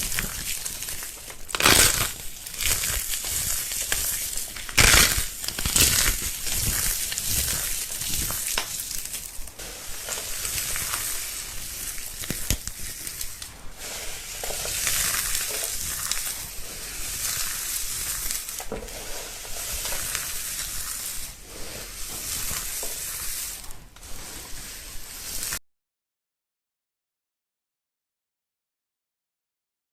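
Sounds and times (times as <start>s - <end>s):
dry material crumbled by hand: 0.0s - 13.5s, 14.3s - 18.8s.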